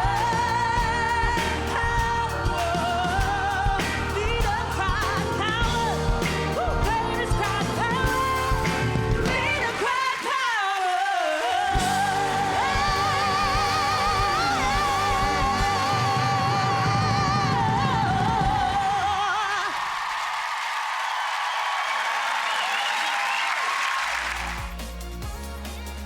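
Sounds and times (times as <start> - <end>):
live band playing: 0.0 - 10.5, 11.6 - 19.2, 23.3 - 26.0
person singing pop song: 0.0 - 19.9.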